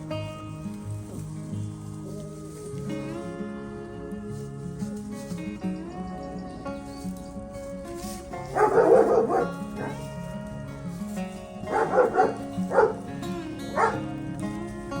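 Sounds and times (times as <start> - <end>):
acoustic guitar music: 0.0 - 15.0
puppy barking and yipping: 8.4 - 10.1, 11.7 - 13.1, 13.7 - 14.1.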